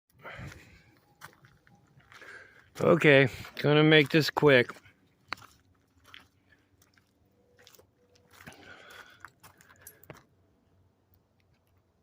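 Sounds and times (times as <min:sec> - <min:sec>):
faint crunches and clicks: 0:11.1 - 0:12.0.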